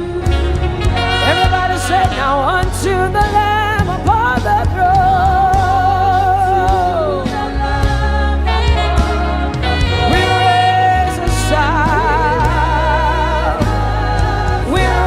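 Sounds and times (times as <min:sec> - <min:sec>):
band accompaniment: 0:00.0 - 0:15.0
person singing with vibrato: 0:00.0 - 0:15.0.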